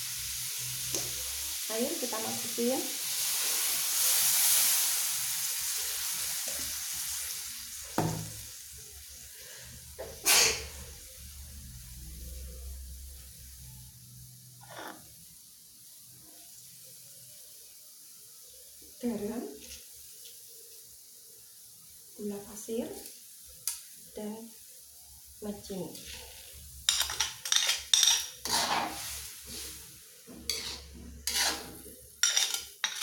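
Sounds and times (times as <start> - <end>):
water sizzling in hot frying pan: 0.0 - 33.0.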